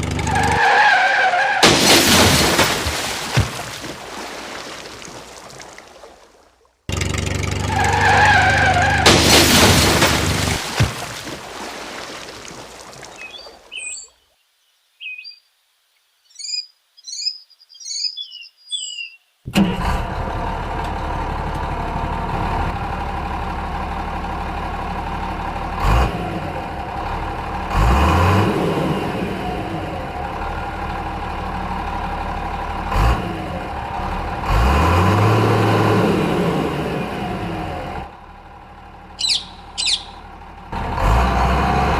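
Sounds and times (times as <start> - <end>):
engine revving: 6.9 - 10.6, 24.8 - 31.0, 32.6 - 38.2, 39.2 - 41.9
birds chirping: 11.6 - 19.5, 39.1 - 40.3.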